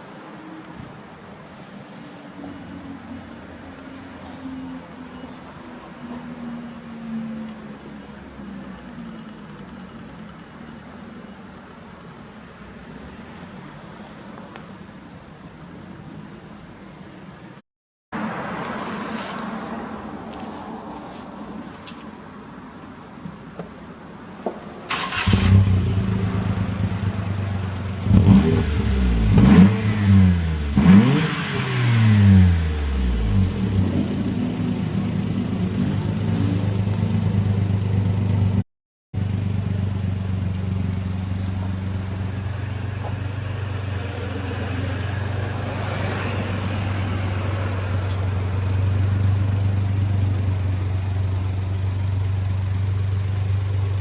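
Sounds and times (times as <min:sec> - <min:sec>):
engine revving: 0:24.9 - 0:38.3
car engine starting: 0:24.9 - 0:38.6, 0:39.2 - 0:54.0
engine idling: 0:39.2 - 0:44.1, 0:47.3 - 0:54.0.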